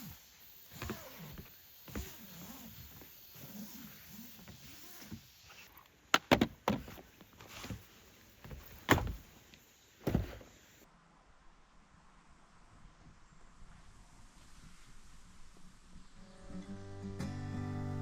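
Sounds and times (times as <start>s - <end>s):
sharp knocks and clunks: 6.1s - 7.1s, 8.5s - 9.3s, 10.0s - 10.5s.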